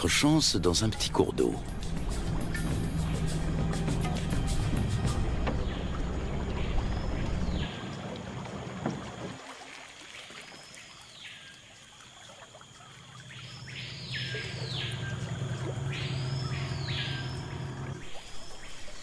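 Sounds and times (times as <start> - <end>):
low hum: 0.0 - 9.2, 13.5 - 19.0
bird calling: 13.3 - 19.0.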